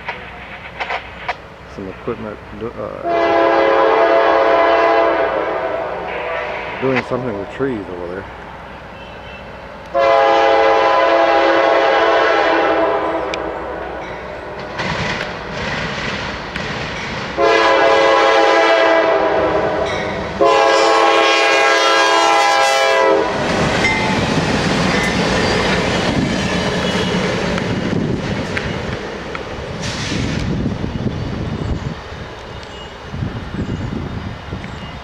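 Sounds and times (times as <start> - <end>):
train wheels clattering on rails: 0.0 - 2.2, 14.0 - 18.0, 23.3 - 31.8
locomotive air horn blasts: 3.0 - 7.1, 9.0 - 14.8, 17.4 - 23.4.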